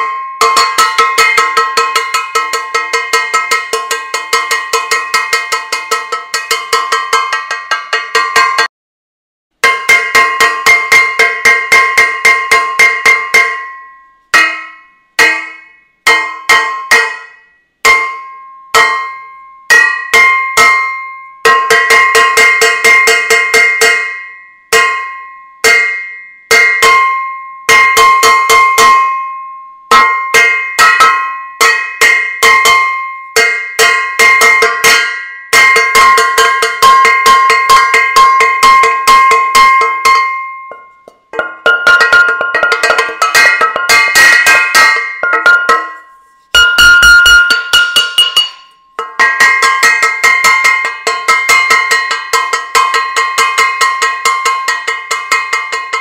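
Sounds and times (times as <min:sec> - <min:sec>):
metal saucepan clanging: 0:33.4 - 0:56.0.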